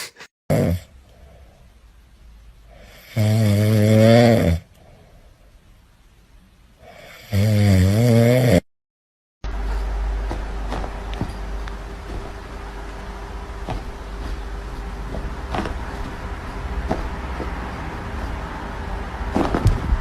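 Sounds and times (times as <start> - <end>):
loud snoring: 0.5 - 0.9, 2.8 - 4.7, 6.9 - 8.7
soft breathing: 4.7 - 5.6.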